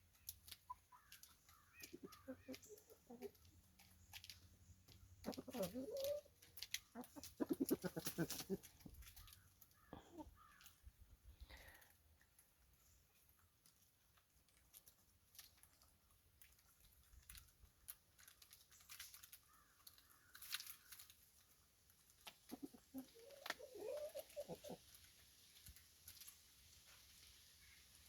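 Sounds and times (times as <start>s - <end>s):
chickens clucking: 0.0s - 11.0s, 18.0s - 27.0s.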